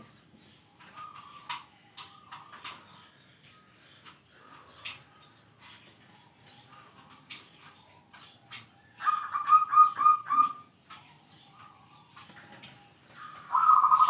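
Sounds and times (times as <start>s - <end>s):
dove cooing: 0.8s - 2.8s, 9.0s - 10.7s, 11.6s - 14.0s
high clicks and chirps: 8.6s - 12.3s.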